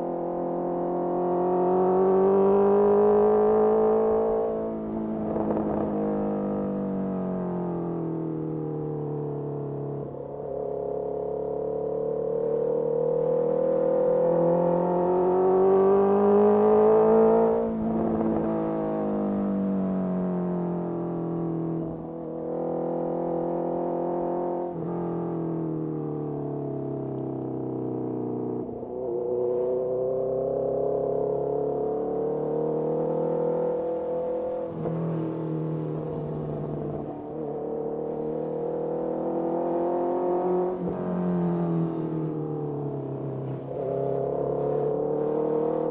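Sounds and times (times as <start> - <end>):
motorcycle engine revving: 28.6 - 45.9.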